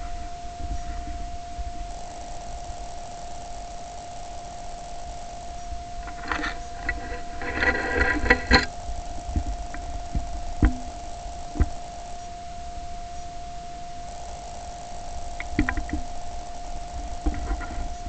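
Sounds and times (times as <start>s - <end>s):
steady high-pitched whine: 0.0s - 18.0s
short knocks and thumps: 15.4s - 16.1s.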